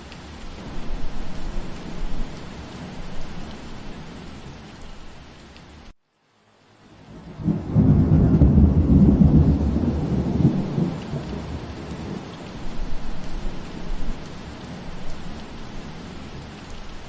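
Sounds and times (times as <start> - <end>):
steady rain: 0.0 - 17.0
thunder rolling: 7.2 - 14.2.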